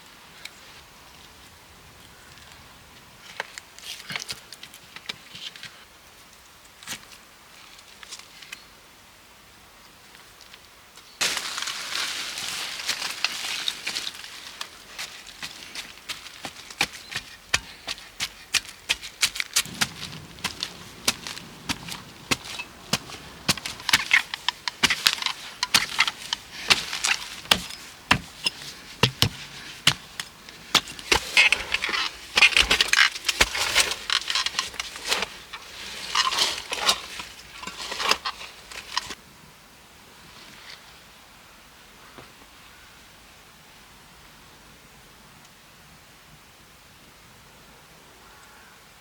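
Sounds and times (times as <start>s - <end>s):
dry wood cracking and snapping: 11.2s - 39.2s
rustling: 11.2s - 39.2s.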